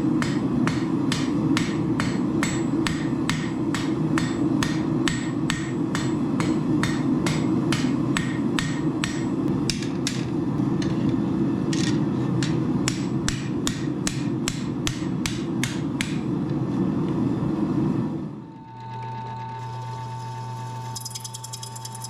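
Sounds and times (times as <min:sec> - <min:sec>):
hammer striking steel on anvil: 0:00.1 - 0:11.0, 0:12.4 - 0:16.3.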